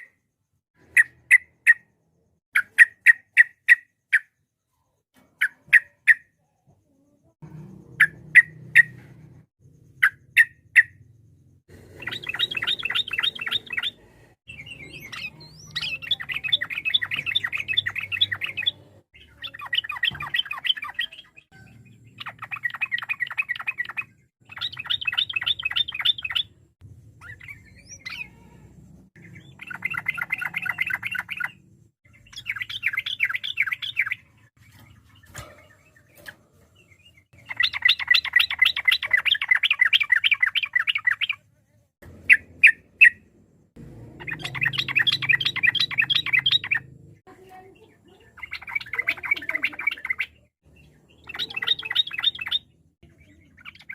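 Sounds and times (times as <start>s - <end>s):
bird singing fast chattering notes: 0.0s - 6.6s, 7.2s - 53.9s.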